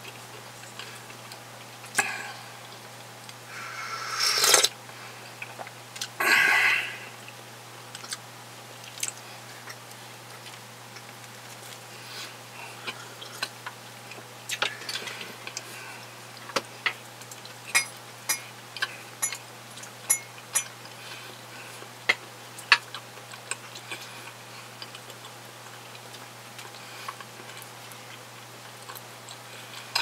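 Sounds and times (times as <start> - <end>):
steady low hum: 0.0 - 30.0
chewing mouth clicks and smacks: 7.9 - 8.2, 8.8 - 11.8.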